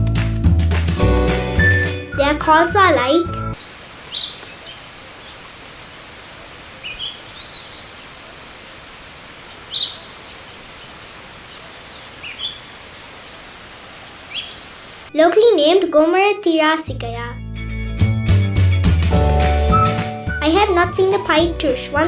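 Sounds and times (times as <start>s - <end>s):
steady background hiss: 3.0s - 15.2s
bird whistling downward: 14.3s - 14.8s.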